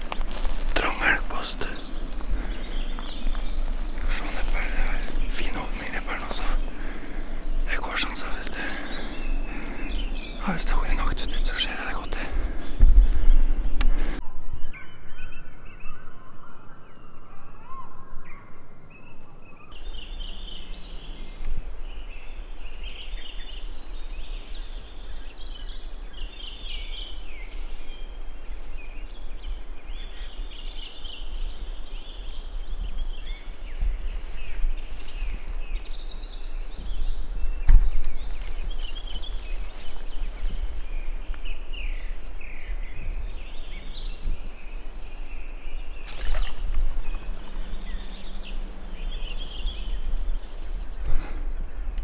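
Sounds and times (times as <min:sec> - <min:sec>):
small birds chirping: 0:00.0 - 0:14.2, 0:19.6 - 0:52.0
wind rumble: 0:00.0 - 0:14.7, 0:27.5 - 0:52.0
microphone handling noise: 0:12.3 - 0:14.2, 0:36.7 - 0:42.1.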